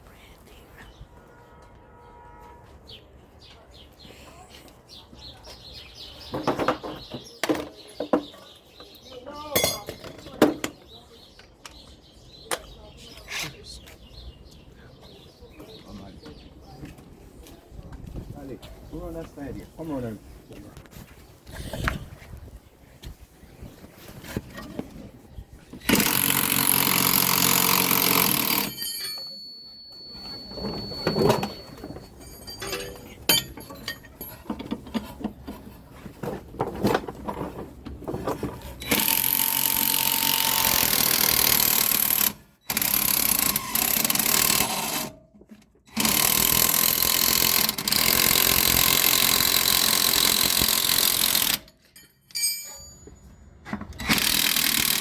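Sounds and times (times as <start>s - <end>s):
hand tools clanking: 9.5s - 10.6s, 25.8s - 40.6s, 47.7s - 55.0s
power wrench running: 25.8s - 29.2s, 38.8s - 45.2s, 45.9s - 51.7s, 54.0s - 55.0s.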